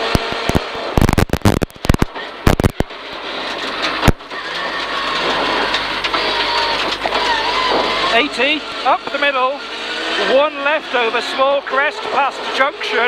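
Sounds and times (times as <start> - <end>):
sharp knocks and clatter: 0.0 - 8.1
car engine revving: 0.0 - 13.0
gravel road noise: 0.0 - 13.0.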